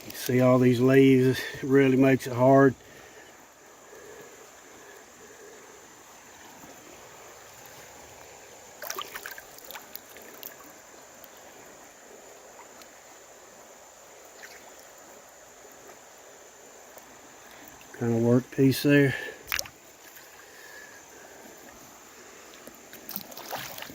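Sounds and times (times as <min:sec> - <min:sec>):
creek water running: 0:00.0 - 0:23.9
person wading splashes: 0:06.4 - 0:11.0, 0:19.4 - 0:23.9.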